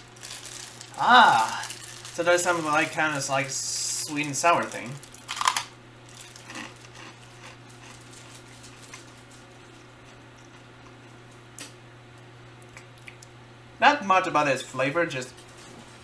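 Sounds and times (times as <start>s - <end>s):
quiet chewing: 6.1s - 13.4s.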